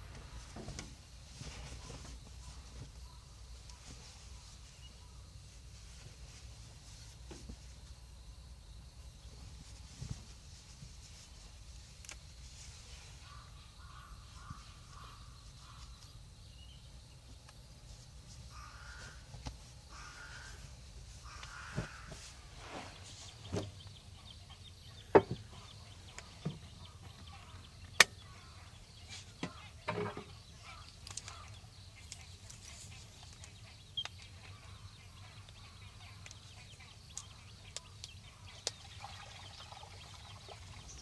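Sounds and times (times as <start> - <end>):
distant bird calling: 12.5 - 17.2, 18.4 - 41.0.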